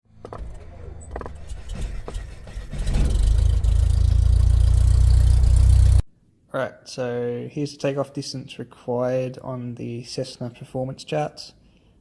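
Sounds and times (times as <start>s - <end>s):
engine starting and running: 0.1s - 6.0s.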